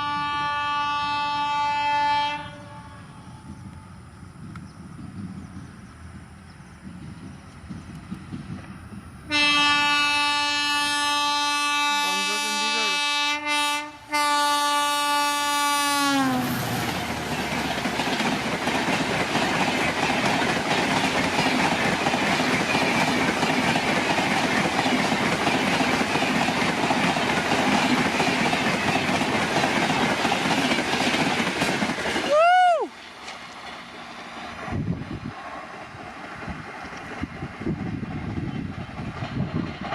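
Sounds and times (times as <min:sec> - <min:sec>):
train horn: 0:00.0 - 0:03.6, 0:09.3 - 0:17.1
train wheels clickety-clack: 0:03.4 - 0:09.0, 0:16.4 - 0:39.9.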